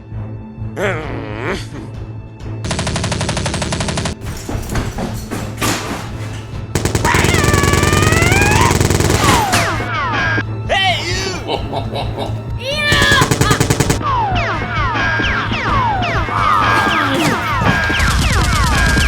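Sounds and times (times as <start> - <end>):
machine-gun fire bursts: 2.7 - 4.2, 6.8 - 9.9, 12.9 - 14.0
background music: 6.8 - 14.3.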